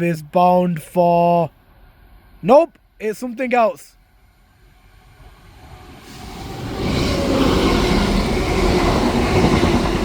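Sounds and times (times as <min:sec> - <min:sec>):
diesel train passing through: 0:04.0 - 0:10.0.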